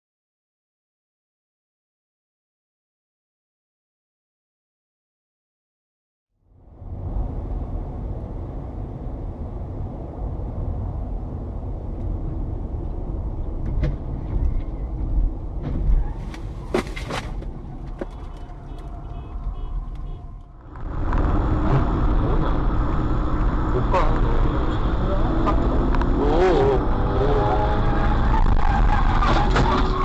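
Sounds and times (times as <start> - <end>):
car engine and tyre rumble: 6.4 - 30.0.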